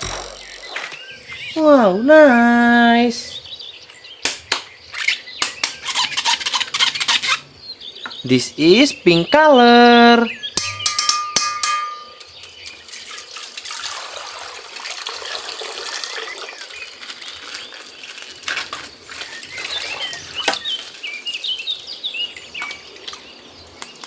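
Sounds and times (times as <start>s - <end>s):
bird chirps: 0.0s - 13.3s, 15.2s - 24.0s
water splashing: 12.8s - 21.0s
plastic bag crinkling and tearing: 16.8s - 20.0s.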